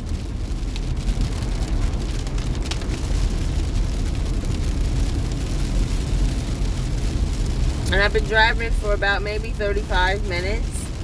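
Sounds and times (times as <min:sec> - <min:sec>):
road and engine rumble: 0:00.0 - 0:11.0.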